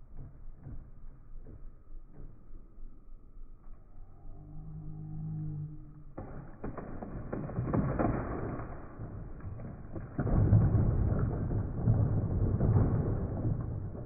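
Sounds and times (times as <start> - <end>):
deep rumbling: 4.0 - 14.0
scattered knocks: 9.0 - 14.0.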